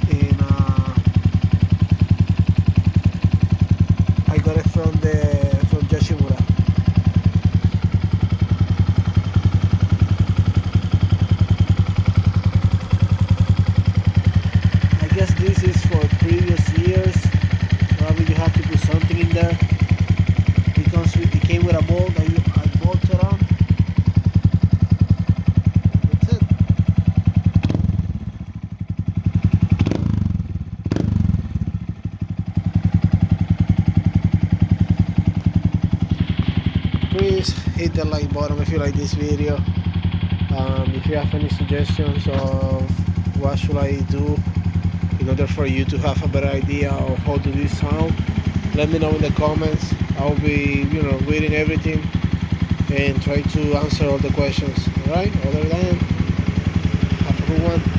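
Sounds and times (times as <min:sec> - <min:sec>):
motorcycle engine idling: 0:00.0 - 0:57.9.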